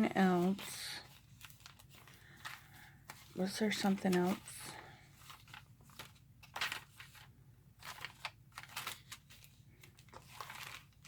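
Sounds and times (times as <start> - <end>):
paper taps and rustles: 5.2 - 11.0.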